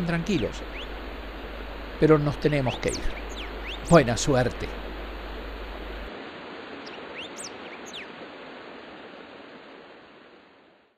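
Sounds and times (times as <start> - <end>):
bird chirps: 0.0 - 1.0, 2.7 - 4.0, 6.8 - 8.1
outdoor ambient hiss: 0.0 - 10.9.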